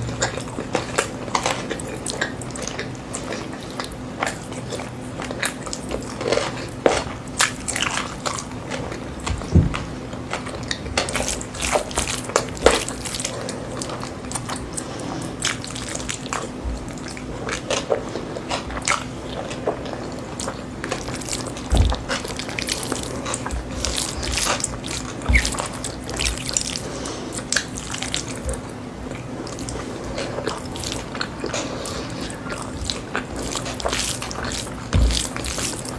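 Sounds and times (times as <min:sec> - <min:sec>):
steady low hum: 0:00.0 - 0:35.9
wet chewing and mouth smacks: 0:00.0 - 0:35.9.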